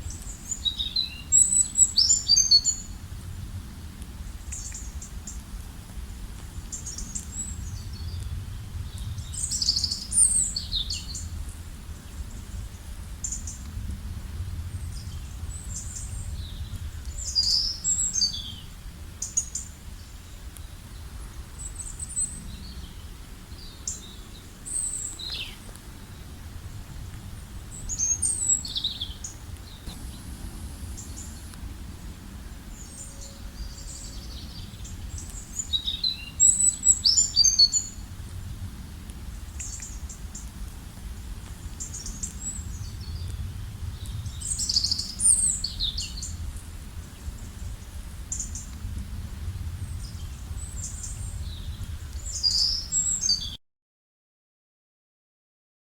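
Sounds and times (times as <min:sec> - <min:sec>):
steady low rumble: 0:22.3 - 0:35.7, 0:38.0 - 0:52.4.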